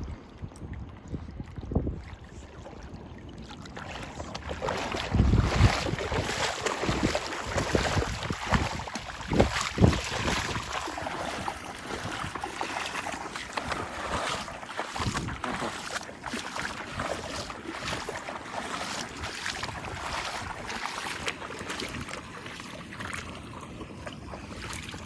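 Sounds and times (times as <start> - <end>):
wind buffeting microphone: 0.0 - 3.1, 4.1 - 16.0, 18.9 - 22.2
rushing water: 1.4 - 25.0.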